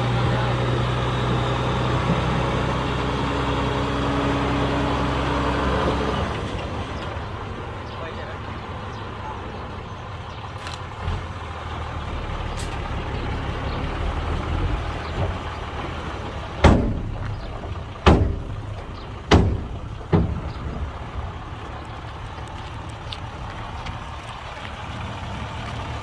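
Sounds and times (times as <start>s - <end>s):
diesel machinery rumbling: 0.0s - 26.0s
loud ringing bangs: 16.6s - 17.3s.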